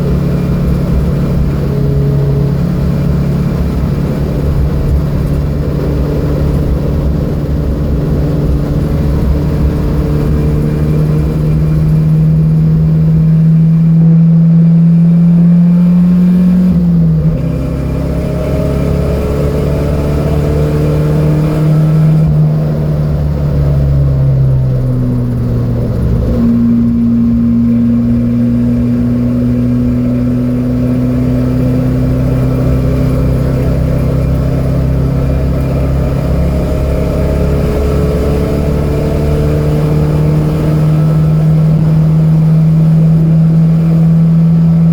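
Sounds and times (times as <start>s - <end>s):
car engine running hard: 0.0s - 44.9s.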